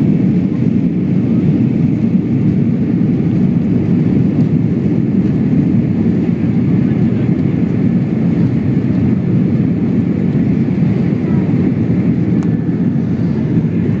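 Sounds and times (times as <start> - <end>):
jet engines roaring in cabin: 0.0 - 14.0
rushing air: 7.9 - 14.0.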